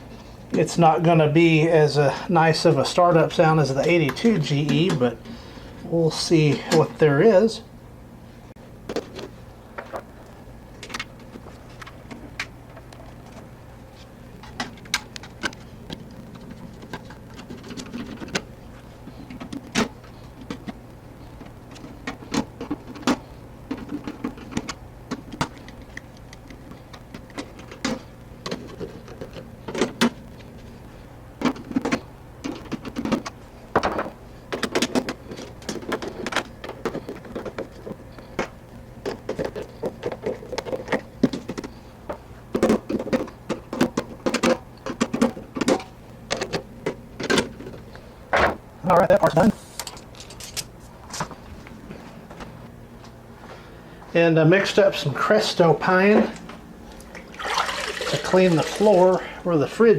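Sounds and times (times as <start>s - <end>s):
steady low hum: 0.0s - 59.9s
refrigerator parts clicking and rattling: 2.6s - 5.2s, 8.8s - 10.1s, 10.7s - 13.5s, 14.4s - 52.6s.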